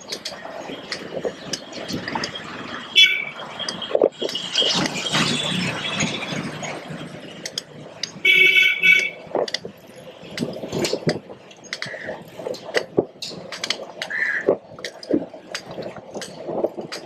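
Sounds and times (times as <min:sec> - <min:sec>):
street traffic: 0:00.0 - 0:17.0
vehicle horn honking: 0:03.0 - 0:03.3, 0:08.2 - 0:09.2.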